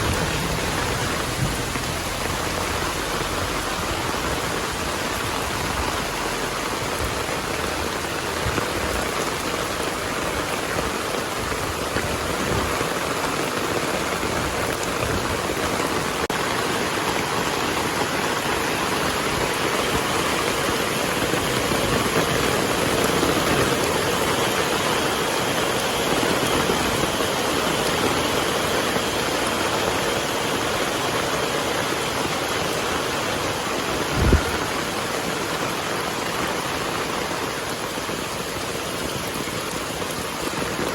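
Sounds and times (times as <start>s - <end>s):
low thump: 0.0s - 4.0s
heavy rain falling: 0.0s - 40.9s.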